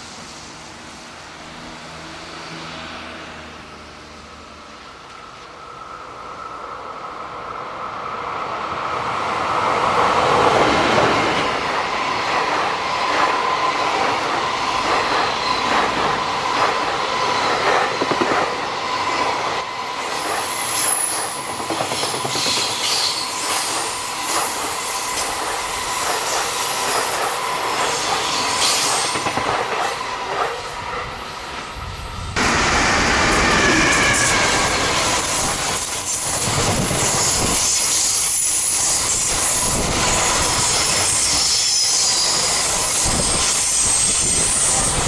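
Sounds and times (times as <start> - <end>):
freight train passing: 0.0 - 45.0
wheels squealing on rail: 8.8 - 45.0
wheels clicking over rail joints: 10.9 - 30.6.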